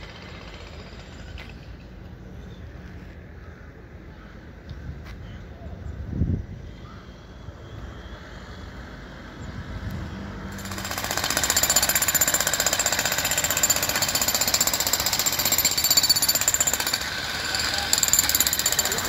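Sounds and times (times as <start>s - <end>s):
jackhammer hammering: 0.0s - 1.4s, 10.5s - 19.0s.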